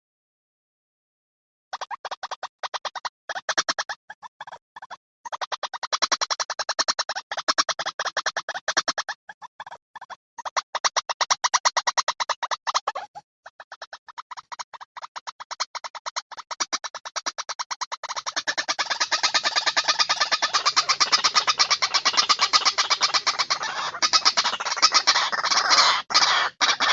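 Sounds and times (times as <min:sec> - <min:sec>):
harsh pulsing bird calls: 0:17.6 - 0:26.9.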